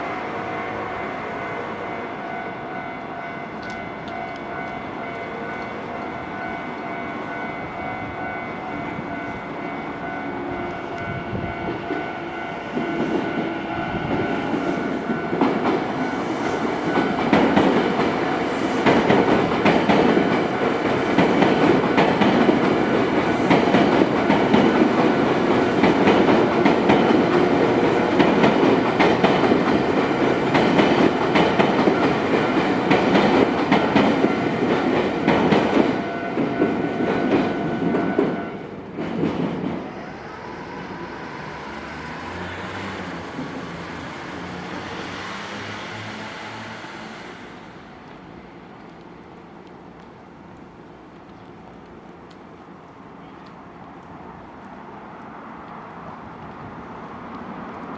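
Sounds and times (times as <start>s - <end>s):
crossing warning bell ringing: 0.0s - 38.7s
train wheels clattering over rail joints: 14.1s - 39.8s.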